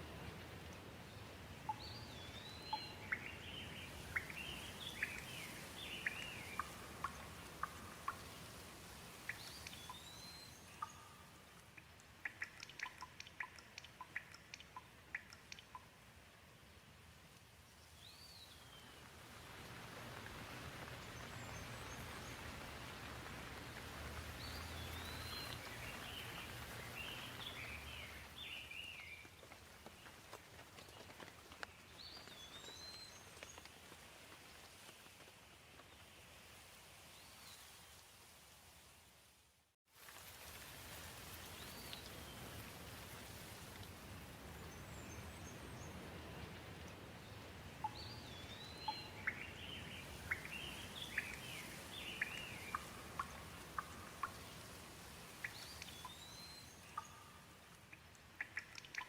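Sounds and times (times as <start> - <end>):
raindrops ticking: 0.0 - 16.3, 19.0 - 36.0, 40.0 - 59.0
gentle rain hiss: 0.0 - 59.0.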